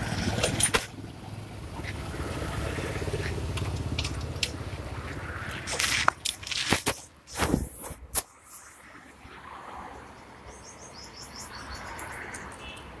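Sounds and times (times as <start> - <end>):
sharp knocks and rustles: 5.6 - 8.3.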